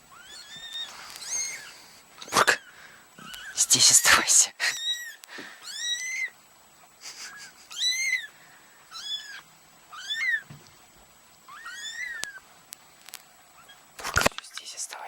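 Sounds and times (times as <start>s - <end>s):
kittens mewing: 0.1s - 6.3s, 7.1s - 10.4s, 11.5s - 12.4s.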